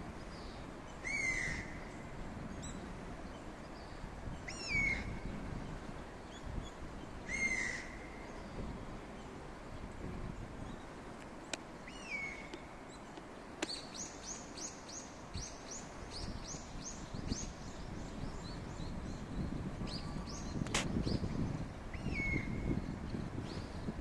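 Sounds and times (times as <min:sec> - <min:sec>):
small birds singing: 0:00.0 - 0:24.0
wind: 0:00.0 - 0:24.0.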